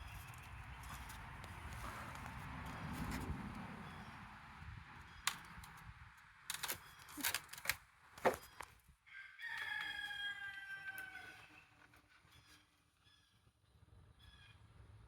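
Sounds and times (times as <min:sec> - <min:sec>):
rooster crowing: 0:09.1 - 0:11.7.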